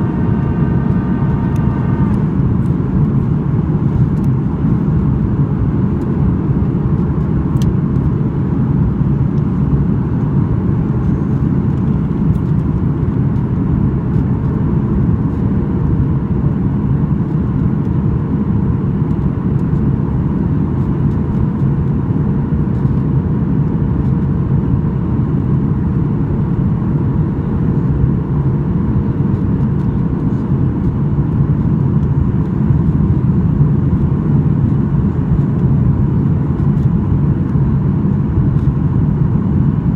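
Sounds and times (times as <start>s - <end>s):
airplane cabin rumble: 0.0s - 39.9s
faint steady whine: 0.0s - 39.9s.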